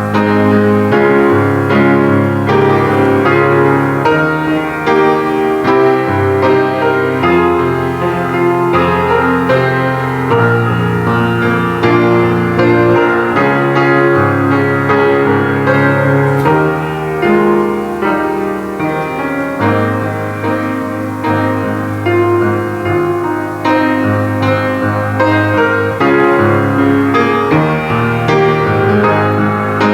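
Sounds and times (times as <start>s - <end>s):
slow piano chords: 0.0s - 29.9s.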